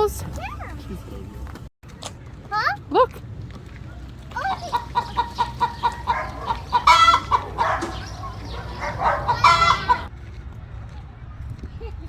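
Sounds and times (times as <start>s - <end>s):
chickens clucking: 4.3s - 10.1s
loud chicken calls: 4.4s - 10.1s.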